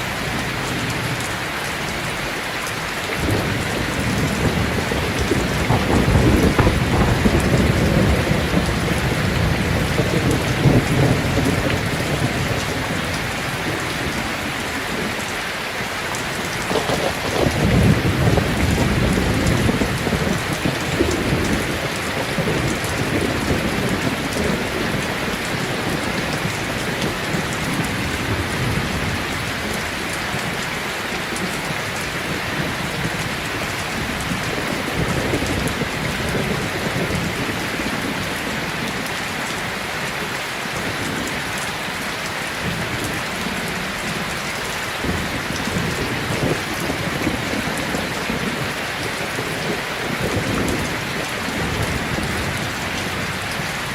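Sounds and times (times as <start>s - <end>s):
heavy rain: 0.0s - 53.9s
thunder rumbling: 3.1s - 15.3s, 16.1s - 30.6s, 42.6s - 53.9s.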